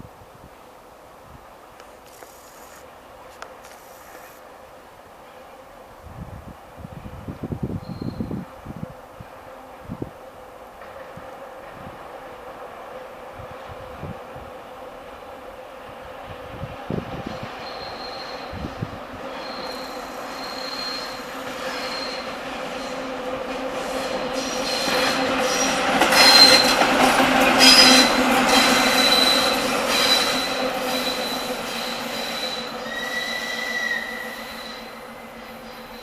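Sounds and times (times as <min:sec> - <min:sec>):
diesel locomotive engine drone: 0:00.6 - 0:36.0
wheels rumbling on rails: 0:01.4 - 0:36.0
high-pitched wheel squeal: 0:07.8 - 0:08.4, 0:17.3 - 0:18.7, 0:19.3 - 0:23.0, 0:27.6 - 0:36.0.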